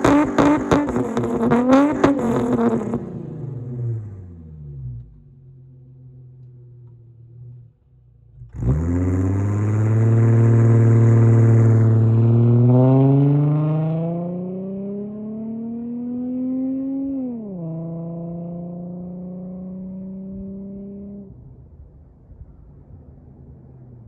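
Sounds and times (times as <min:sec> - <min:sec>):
car engine accelerating hard: 0:00.0 - 0:21.6.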